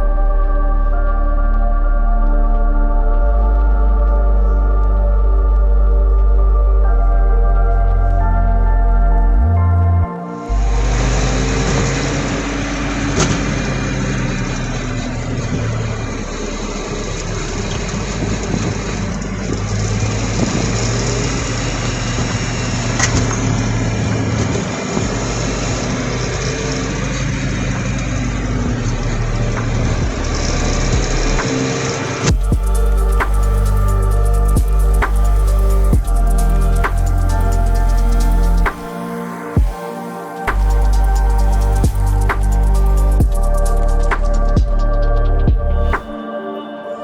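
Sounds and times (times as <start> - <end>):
road and wind noise: 3.4 - 46.1
car engine running: 10.6 - 39.0.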